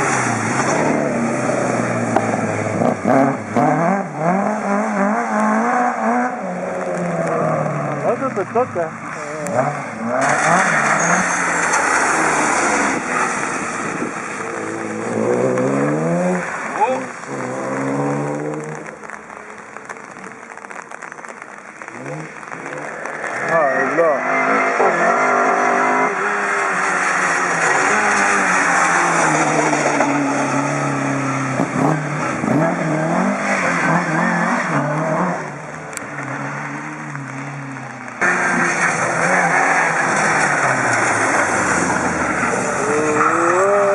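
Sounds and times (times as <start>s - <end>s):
rally car engine: 0.0s - 43.9s.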